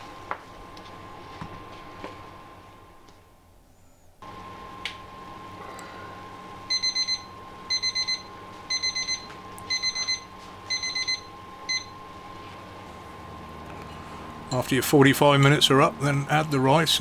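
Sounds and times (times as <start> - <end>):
steady hum: 4.2 - 17.0
electronic timer beeping: 6.7 - 11.9.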